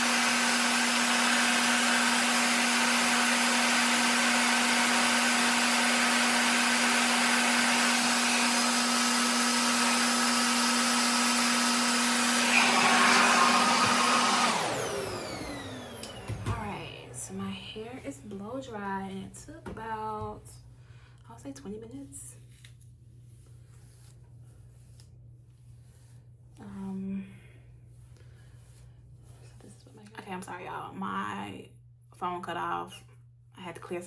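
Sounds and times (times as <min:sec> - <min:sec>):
motor winding down: 0:00.0 - 0:17.2
blow dryer humming: 0:00.0 - 0:18.1.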